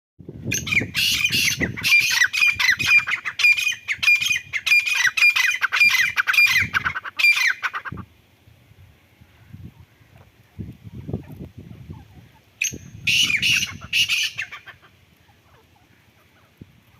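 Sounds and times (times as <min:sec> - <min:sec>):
partridge harsh squawking calls: 0:00.5 - 0:08.0, 0:11.9 - 0:16.6.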